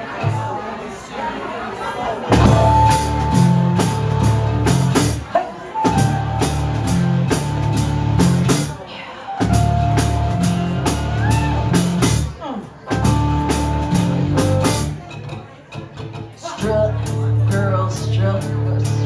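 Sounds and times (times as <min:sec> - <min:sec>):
drum kit beat: 0:02.3 - 0:08.8, 0:09.4 - 0:15.2
live rock band playing: 0:02.3 - 0:15.1.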